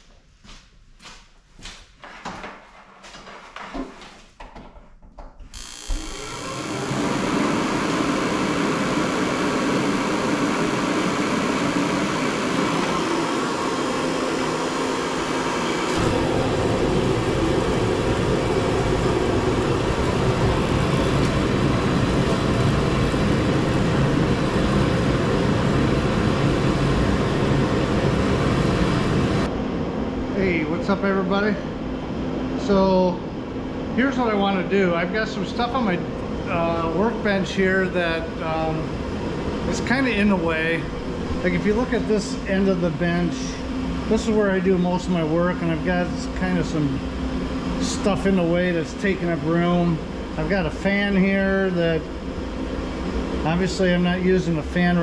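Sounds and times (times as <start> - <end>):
loud steady machine roar: 5.6 - 55.0.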